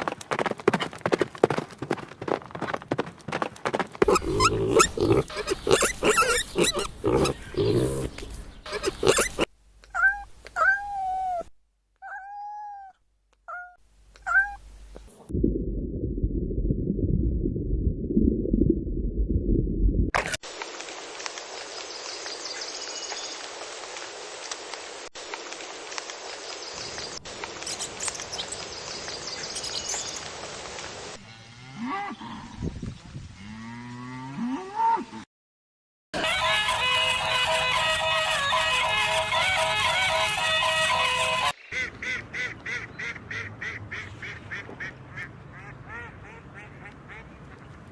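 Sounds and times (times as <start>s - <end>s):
cat meowing: 9.9s - 14.6s
steady low rumbling: 14.8s - 20.1s
steady outdoor noise: 20.1s - 31.3s, 36.2s - 47.9s.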